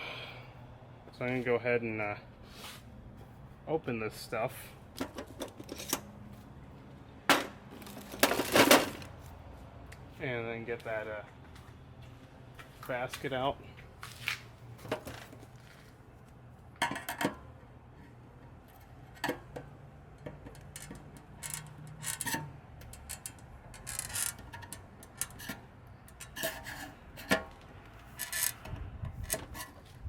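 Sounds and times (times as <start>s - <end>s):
metal can clicking and scraping: 20.2s - 29.8s.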